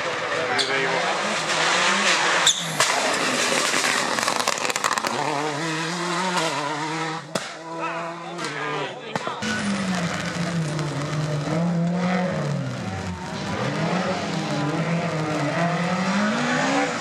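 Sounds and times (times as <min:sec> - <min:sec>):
rally car engine at high revs: 0:00.0 - 0:08.7, 0:09.4 - 0:17.0
exhaust pops crackling: 0:02.7 - 0:05.4.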